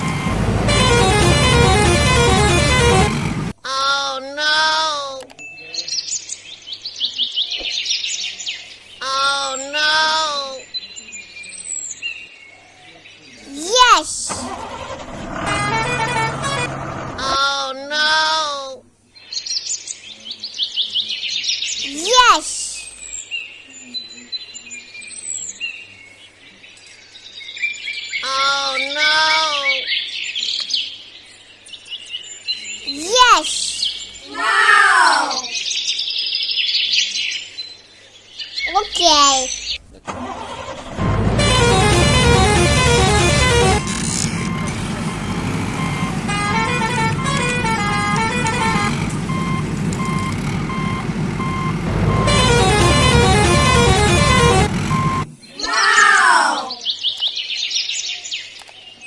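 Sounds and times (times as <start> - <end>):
reversing-style beep: 0.0 - 0.4, 42.2 - 55.3
low toy engine rumble: 14.4 - 17.4, 39.8 - 55.4
birds chirping: 29.6 - 59.0
drawn-out voice-like tone: 32.9 - 35.5
toy beeping tune: 41.4 - 44.7, 45.8 - 55.3.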